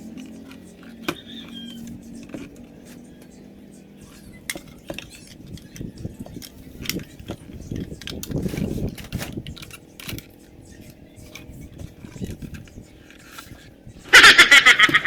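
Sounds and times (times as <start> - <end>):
hard objects clicking and knocking: 4.1 - 13.5.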